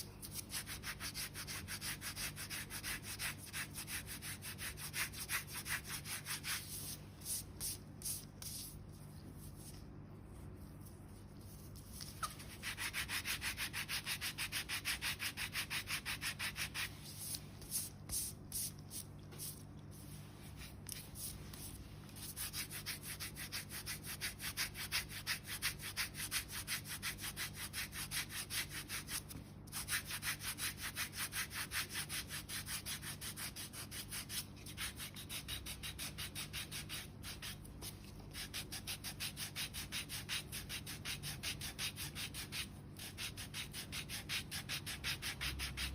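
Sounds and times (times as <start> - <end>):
foot file rasping on skin: 29.8 - 45.9.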